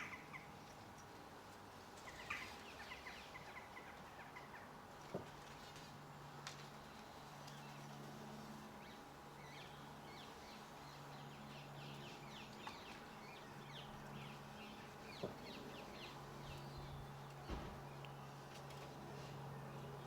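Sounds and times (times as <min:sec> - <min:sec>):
small birds chirping: 0:08.8 - 0:18.5.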